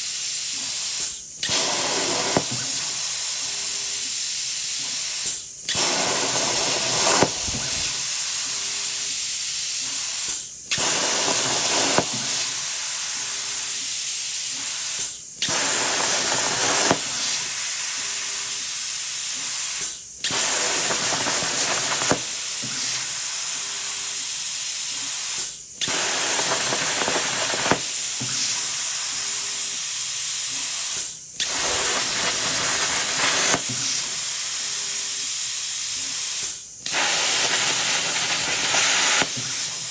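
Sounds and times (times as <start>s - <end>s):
plasma torch hissing: 0.0s - 39.9s.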